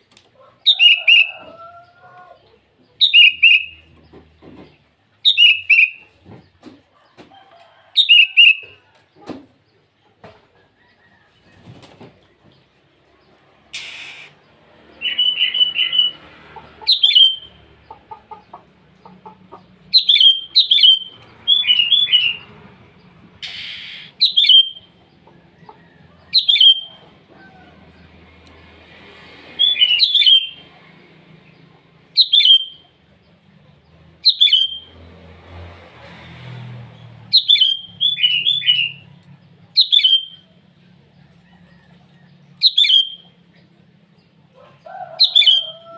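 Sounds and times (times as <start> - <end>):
bird whistled call notes: 3.0 - 3.8, 20.0 - 22.4, 23.4 - 24.9, 26.4 - 27.0, 29.6 - 30.6, 32.2 - 32.8, 34.3 - 34.9, 37.4 - 39.0, 39.8 - 40.4, 42.6 - 43.3.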